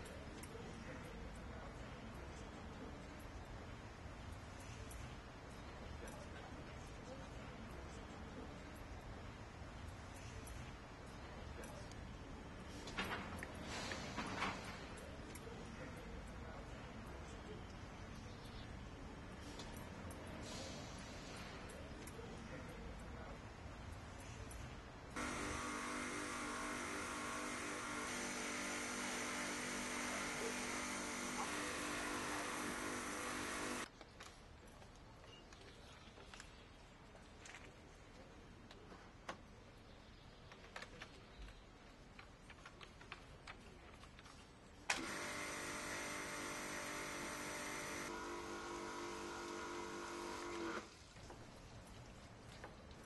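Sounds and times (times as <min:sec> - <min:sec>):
machine motor humming: 0:25.2 - 0:33.9, 0:44.9 - 0:50.9
pressure washer running: 0:25.2 - 0:33.9, 0:45.0 - 0:50.9.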